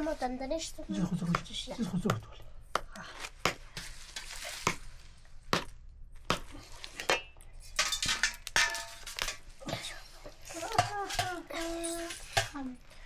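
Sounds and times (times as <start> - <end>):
knife chopping on board: 2.1 - 3.7.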